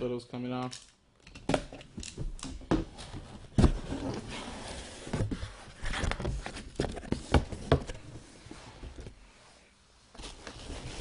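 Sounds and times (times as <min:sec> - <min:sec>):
cardboard and plastic rustling: 0:02.6 - 0:09.2.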